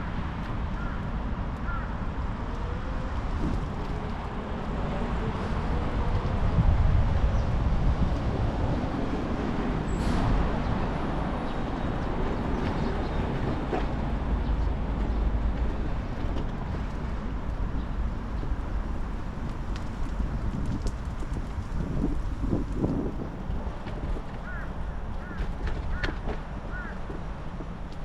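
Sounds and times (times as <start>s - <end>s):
wind on microphone: 2.8s - 26.0s
bicycle tyres rolling: 3.1s - 4.8s, 11.4s - 26.0s.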